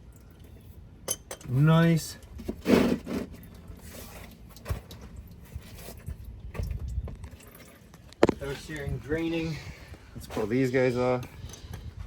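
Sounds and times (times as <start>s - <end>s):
fluid draining from lines: 3.3s - 10.3s.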